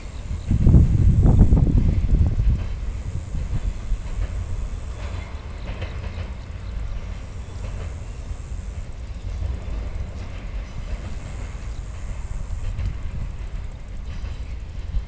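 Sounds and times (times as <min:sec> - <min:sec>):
freight train rumbling over bridge: 0:00.0 - 0:15.0
wheel clickety-clack: 0:00.0 - 0:15.0.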